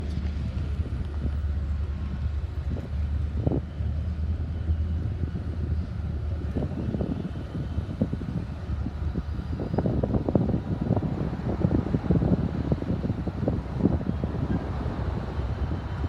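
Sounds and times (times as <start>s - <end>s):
wind buffeting microphone: 0.0s - 16.0s
locomotives rumbling: 4.7s - 16.0s.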